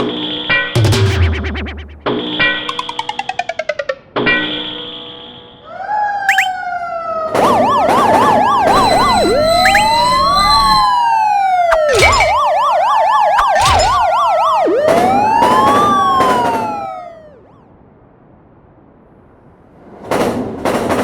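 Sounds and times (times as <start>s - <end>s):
electronic sirens wailing: 6.3s - 17.6s.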